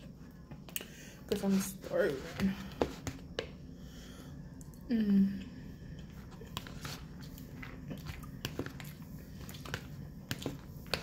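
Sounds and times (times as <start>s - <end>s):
person chewing food: 5.9s - 11.0s.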